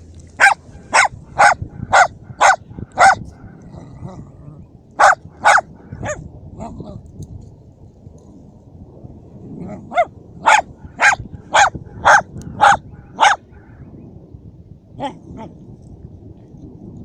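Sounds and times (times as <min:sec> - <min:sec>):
dog barking: 0:00.4 - 0:03.6, 0:05.0 - 0:06.2, 0:09.7 - 0:13.7.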